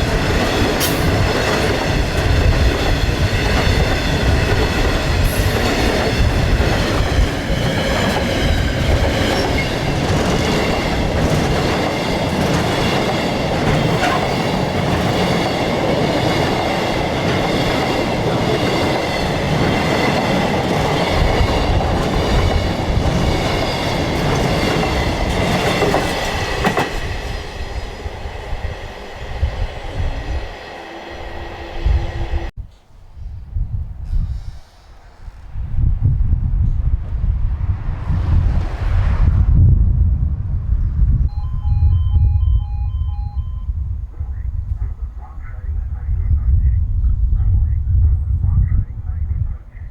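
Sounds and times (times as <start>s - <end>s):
train wheels rolling on rails: 0.0s - 32.5s
high-pitched ringing tones: 41.3s - 43.9s.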